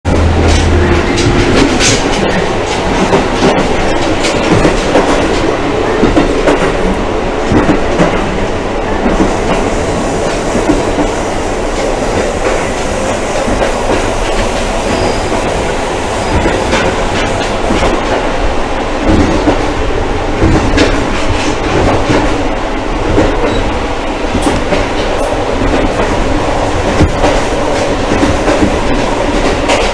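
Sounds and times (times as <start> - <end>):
rumble of wheels and diesel engine: 0.1 - 3.8.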